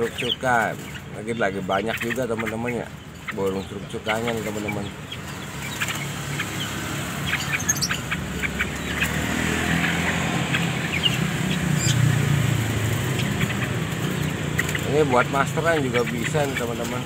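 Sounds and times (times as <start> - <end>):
caged birds chirping: 0.0 - 17.0
passing vehicle engine rumble: 3.5 - 17.0.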